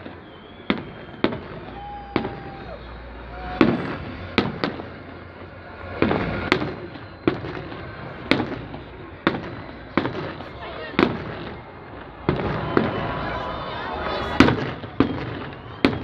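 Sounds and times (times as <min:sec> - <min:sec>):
fireworks bangs: 0:00.0 - 0:16.0
fireworks crackling: 0:00.0 - 0:16.0
fireworks whistle: 0:00.0 - 0:16.0.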